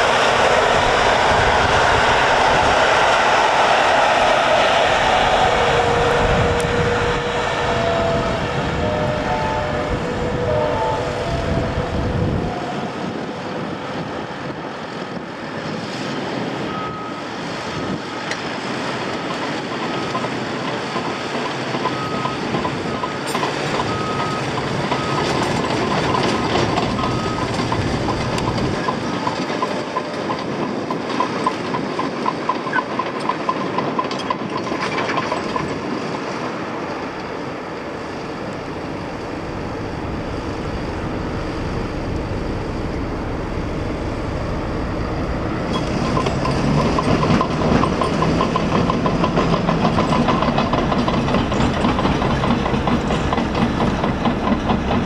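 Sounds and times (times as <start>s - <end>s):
heavy machinery: 0.0s - 55.0s
reversing alarm beeping: 5.5s - 13.2s, 16.6s - 17.4s, 21.8s - 31.4s, 38.0s - 53.8s.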